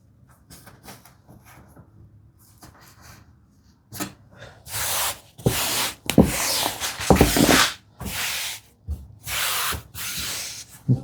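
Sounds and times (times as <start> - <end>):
hands rubbing fabric swishing: 5.5 - 7.8.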